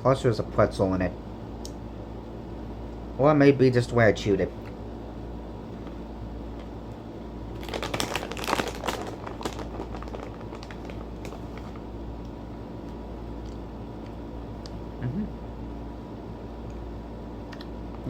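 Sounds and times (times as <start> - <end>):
snack bag crinkling: 7.5 - 11.9.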